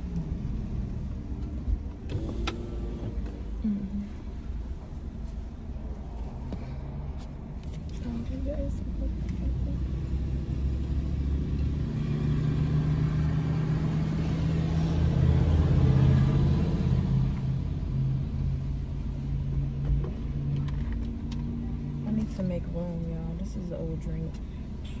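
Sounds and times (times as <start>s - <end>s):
car engine idling: 0.0s - 11.8s.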